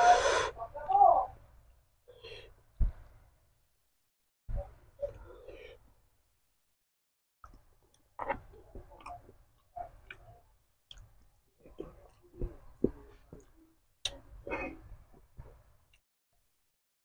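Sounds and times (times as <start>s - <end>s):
man chewing meat: 7.4s - 16.0s
wet mouth clicks and smacking: 9.9s - 11.4s.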